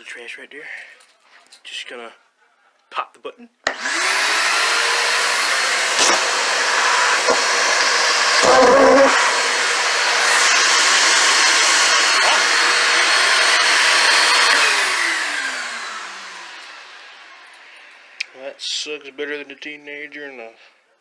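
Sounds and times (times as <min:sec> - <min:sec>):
shop vacuum motor whine: 0:03.7 - 0:18.4.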